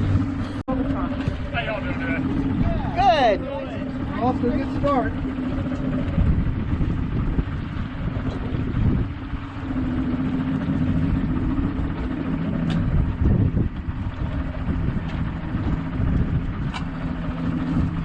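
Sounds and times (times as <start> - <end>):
outboard engines idling: 0.0 - 18.0
wind buffeting microphone: 0.0 - 18.0.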